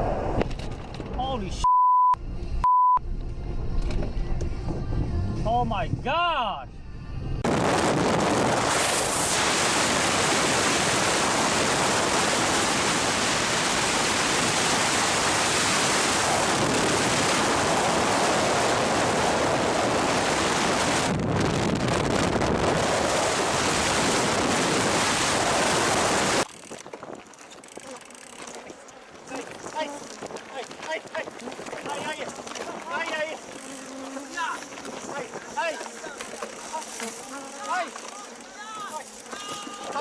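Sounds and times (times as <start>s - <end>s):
storm wind and rain rushing: 7.4s - 27.6s, 29.2s - 33.6s.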